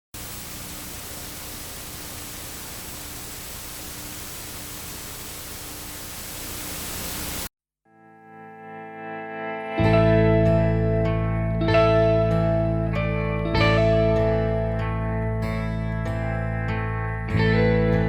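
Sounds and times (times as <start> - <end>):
static hiss: 0.1 - 7.5
faint hum: 0.2 - 7.5
effects-laden electric guitar music: 7.9 - 18.0.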